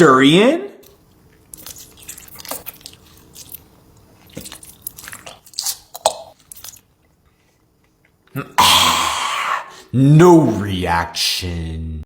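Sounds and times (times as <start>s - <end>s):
person chewing and biting: 1.3s - 7.1s.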